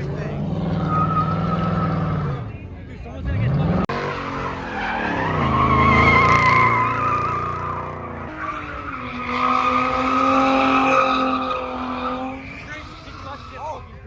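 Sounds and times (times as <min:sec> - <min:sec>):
tyres squealing in skid: 0:00.6 - 0:02.4, 0:03.9 - 0:14.0.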